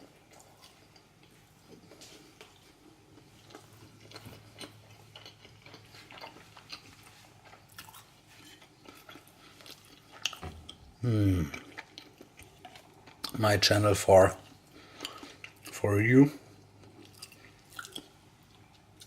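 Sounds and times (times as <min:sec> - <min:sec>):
wet chewing mouth clicks: 0:17.0 - 0:18.8.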